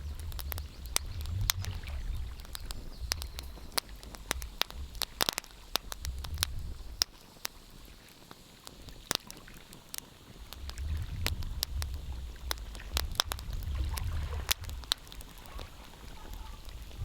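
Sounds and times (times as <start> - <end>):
low rumble: 0.0 - 5.1
wood fire crackling: 0.0 - 17.0.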